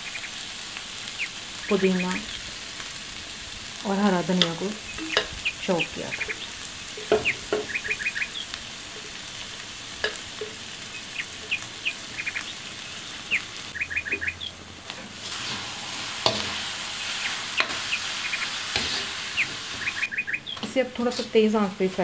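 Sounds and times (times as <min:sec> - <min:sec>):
small birds chirping: 0:00.0 - 0:00.4, 0:01.0 - 0:02.9, 0:03.8 - 0:14.7, 0:17.0 - 0:18.6, 0:19.2 - 0:21.3
meat sizzling in a pan: 0:00.0 - 0:20.2
spoon knocking on a pan: 0:07.0 - 0:07.9.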